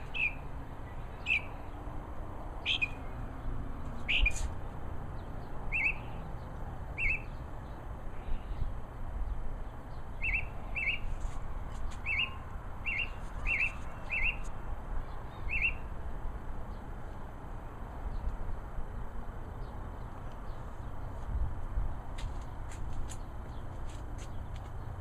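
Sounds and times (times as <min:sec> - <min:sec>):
songbird high chirp: 0:00.0 - 0:02.0, 0:02.6 - 0:16.0.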